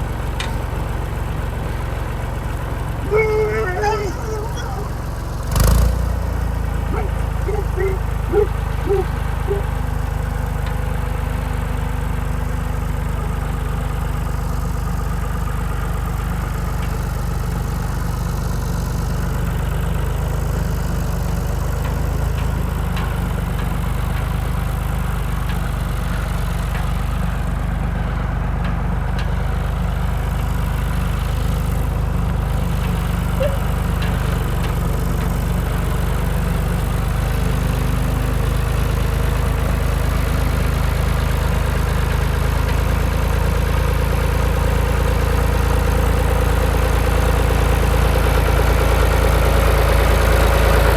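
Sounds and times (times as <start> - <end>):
tractor diesel engine running: 0.0 - 50.9
brief pitched sounds: 3.1 - 5.1, 6.9 - 9.7.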